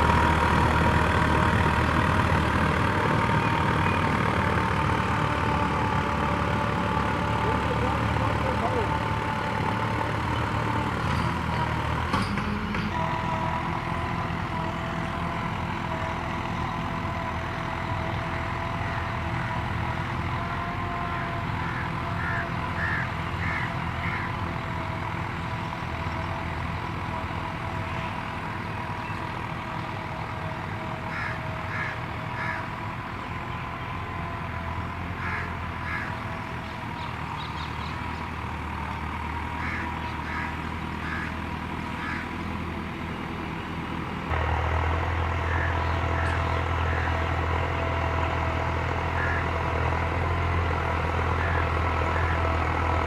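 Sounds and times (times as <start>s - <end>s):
tractor diesel engine running: 0.0s - 53.0s
bird calls: 21.1s - 24.5s, 25.4s - 30.1s, 31.0s - 42.5s, 45.1s - 47.4s, 49.1s - 49.6s.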